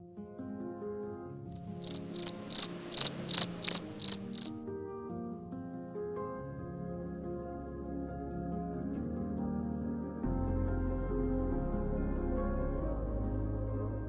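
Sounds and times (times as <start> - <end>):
soft background music: 0.0 - 14.0
cricket chirping: 1.5 - 4.5.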